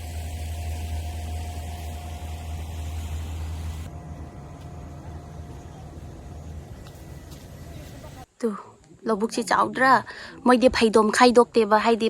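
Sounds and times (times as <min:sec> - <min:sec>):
hiss: 0:00.0 - 0:03.9
engine humming with whine: 0:00.0 - 0:08.3.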